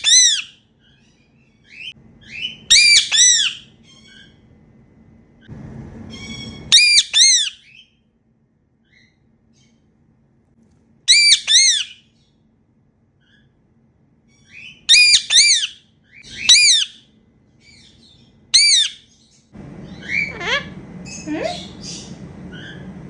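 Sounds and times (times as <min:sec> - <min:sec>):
parakeet squawking: 0:00.0 - 0:01.0, 0:01.7 - 0:04.4, 0:06.1 - 0:07.8, 0:11.1 - 0:12.1, 0:14.5 - 0:17.1, 0:18.5 - 0:19.1, 0:19.8 - 0:23.0.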